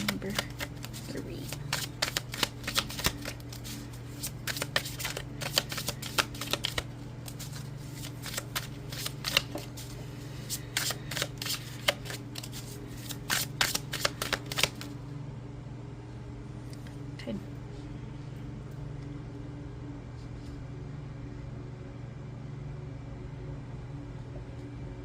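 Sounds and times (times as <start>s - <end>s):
cards being shuffled: 0.0s - 15.0s.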